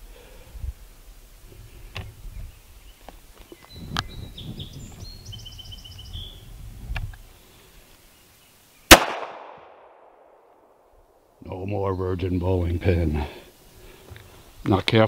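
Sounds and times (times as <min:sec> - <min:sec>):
bird chirping: 0:02.0 - 0:06.6
pistol shot with echo: 0:08.9 - 0:10.4.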